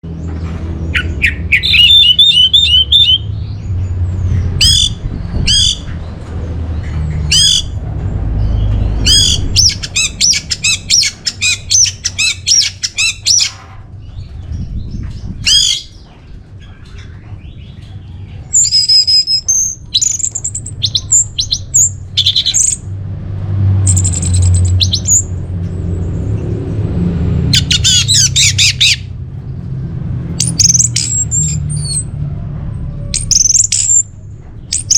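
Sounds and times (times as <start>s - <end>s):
thrush singing varied song: 0.9s - 3.6s.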